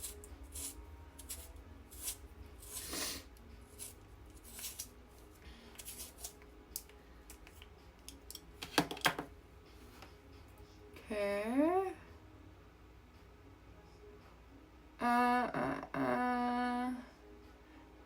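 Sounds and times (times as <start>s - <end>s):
pencil scraping and rustling: 0.0s - 6.4s
low room hum: 0.0s - 18.0s.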